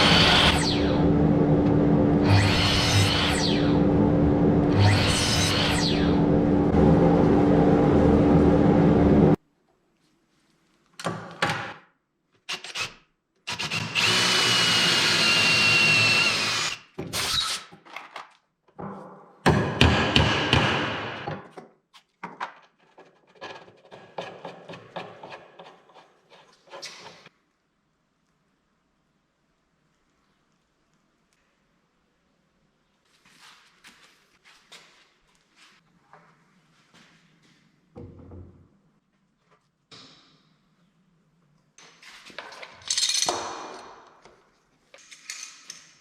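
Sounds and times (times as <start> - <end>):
high tool whine: 0.0 - 9.4
woodworking power tools: 0.0 - 9.4, 12.5 - 17.6.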